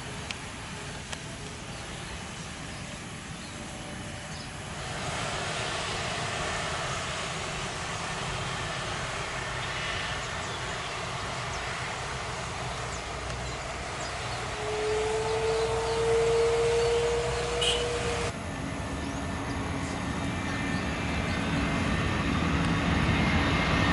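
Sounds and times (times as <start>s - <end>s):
jet engine rushing: 0.0s - 23.9s.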